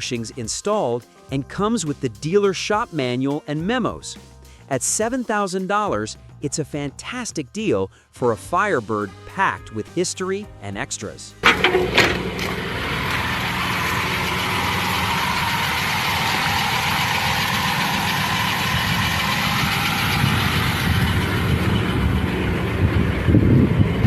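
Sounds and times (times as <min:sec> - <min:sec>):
car engine idling: 0:11.4 - 0:24.0.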